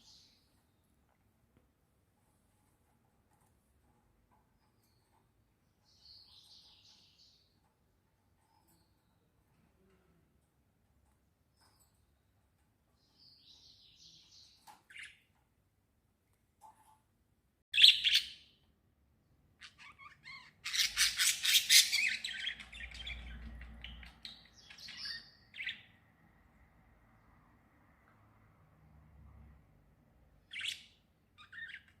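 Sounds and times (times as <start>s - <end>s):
small birds chirping and twittering: 0.0s - 1.2s, 2.2s - 15.5s, 17.7s - 18.7s, 19.4s - 26.2s, 30.2s - 32.0s.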